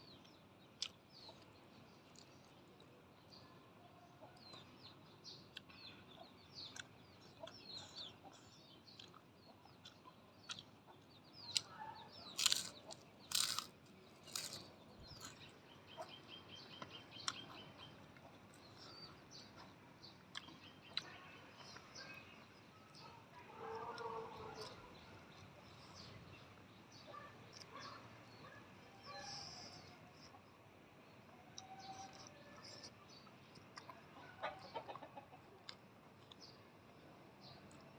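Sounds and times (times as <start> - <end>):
birds chirping: 4.2 - 37.9
loud sharp crunches: 12.4 - 15.5
chickens clucking: 14.3 - 19.7, 33.7 - 35.8.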